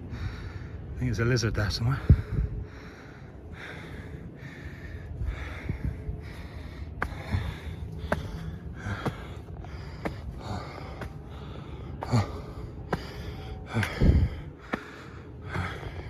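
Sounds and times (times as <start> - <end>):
man breathing hard: 0.0 - 1.0, 1.9 - 16.0.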